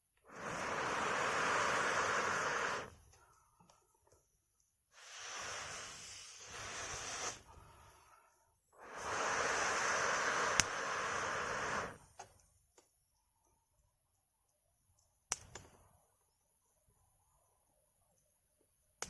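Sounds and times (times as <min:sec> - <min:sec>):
air hissing through blowing pipe: 0:00.2 - 0:03.3, 0:04.9 - 0:12.2.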